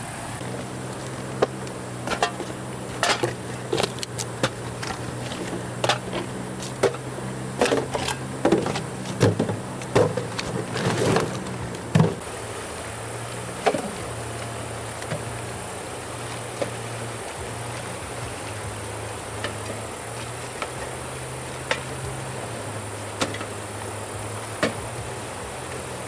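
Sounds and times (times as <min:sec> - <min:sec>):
steady low hum: 0:00.0 - 0:26.0
knocks and clatters: 0:00.4 - 0:12.3.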